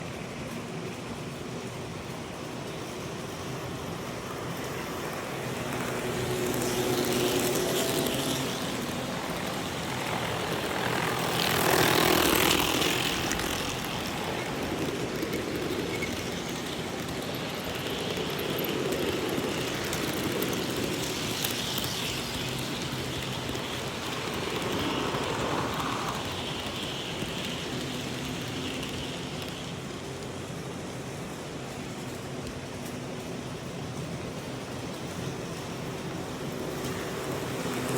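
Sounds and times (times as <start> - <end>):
model train rushing whir: 0.0 - 37.9.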